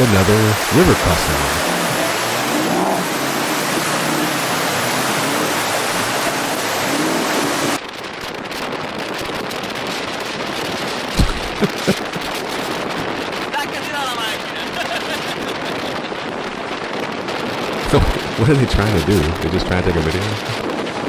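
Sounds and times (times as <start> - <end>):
rushing river water: 0.0 - 7.8
short thumps: 11.2 - 11.8, 17.9 - 18.6.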